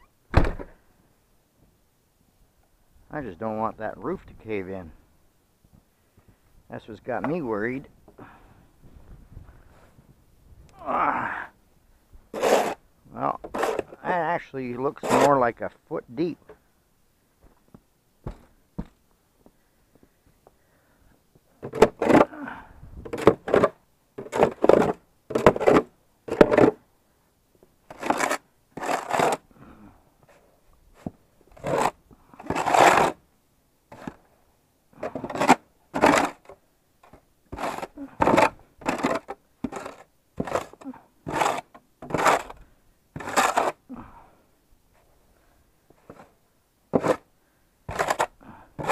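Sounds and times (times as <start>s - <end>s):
snow shovel scraping snow: 12.3s - 12.8s, 13.5s - 14.1s, 14.8s - 15.4s, 27.9s - 29.5s, 31.6s - 33.2s, 35.0s - 36.5s, 37.5s - 42.6s, 43.2s - 43.8s, 46.9s - 47.3s, 47.9s - 48.9s.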